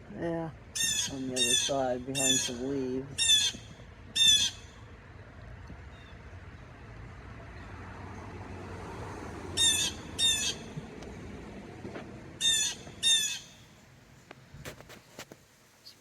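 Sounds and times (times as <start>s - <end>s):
blue jay harsh jeering calls: 0.7s - 4.8s, 9.6s - 10.8s, 12.4s - 13.6s.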